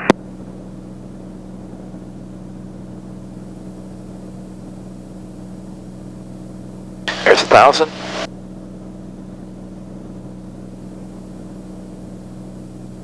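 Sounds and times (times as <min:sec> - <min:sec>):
propeller engine droning: 0:07.1 - 0:08.3.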